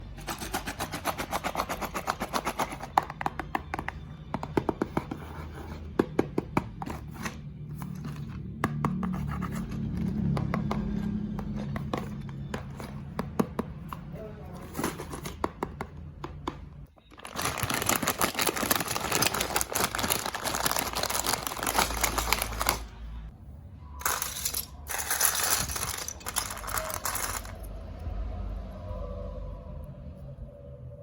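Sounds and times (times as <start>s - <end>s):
marbles rolling along track: 24.0s - 27.7s.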